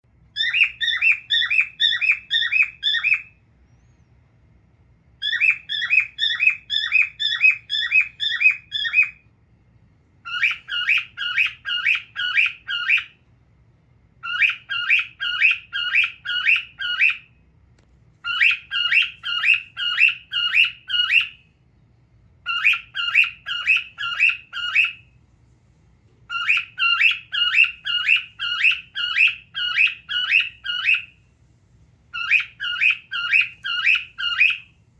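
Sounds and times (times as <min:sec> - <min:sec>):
cockatiel chirping: 0:00.3 - 0:04.0, 0:05.2 - 0:09.3, 0:10.2 - 0:13.2, 0:14.2 - 0:17.4, 0:18.2 - 0:21.5, 0:22.4 - 0:25.2, 0:26.2 - 0:31.2, 0:32.1 - 0:34.8.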